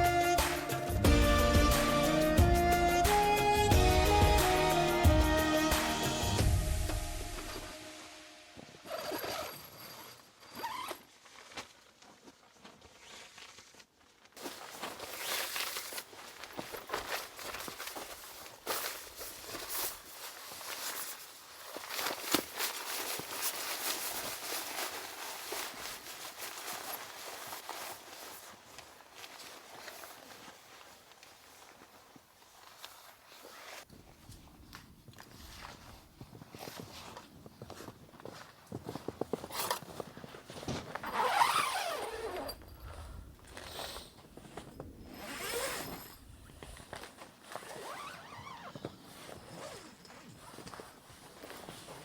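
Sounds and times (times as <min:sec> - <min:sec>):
footsteps crunching in snow: 0:10.6 - 0:42.5, 0:43.4 - 0:52.0.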